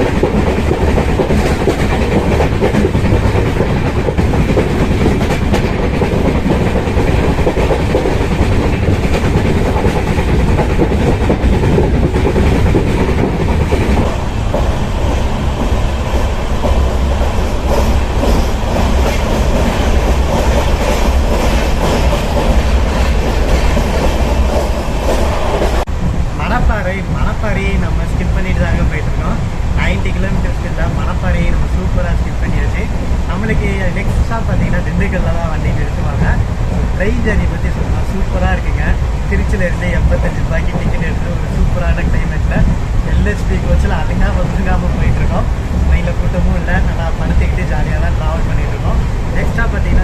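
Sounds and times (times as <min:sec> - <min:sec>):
train coach rattling: 0:00.0 - 0:50.0
train wheels rumbling on rails: 0:00.0 - 0:50.0.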